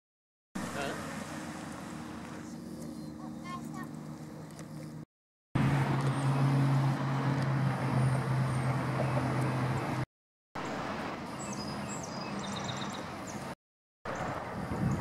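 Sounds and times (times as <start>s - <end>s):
road noise: 0.6s - 15.0s
bird chirps: 2.4s - 5.0s, 11.4s - 13.5s
vehicle engine running: 5.6s - 10.0s.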